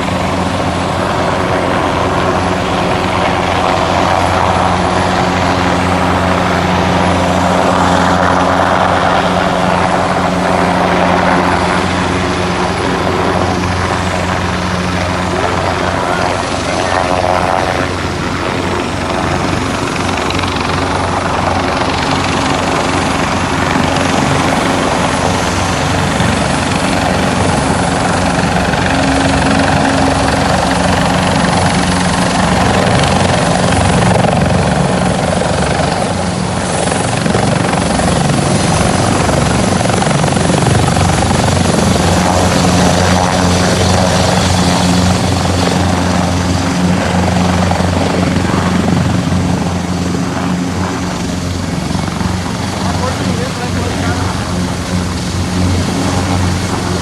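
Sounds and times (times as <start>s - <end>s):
turbine whine: 0.0s - 57.0s
rushing rotor wash: 43.5s - 57.0s.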